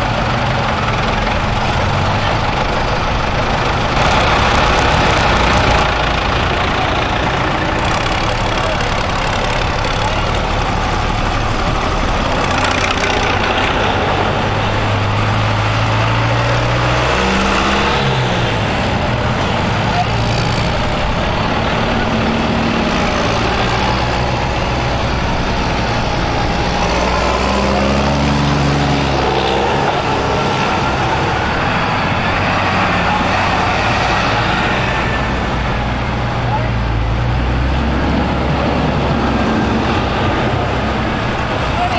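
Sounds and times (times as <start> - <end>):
tractors driving past: 0.0 - 41.9.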